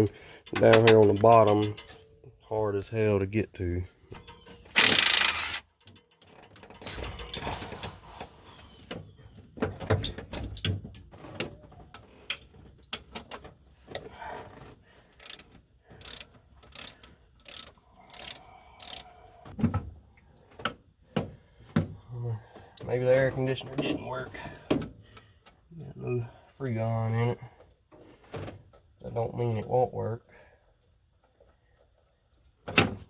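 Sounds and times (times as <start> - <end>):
metal knocks and clanks: 0.5 - 2.1
socket ratchet clicking: 4.8 - 5.7, 16.0 - 19.0.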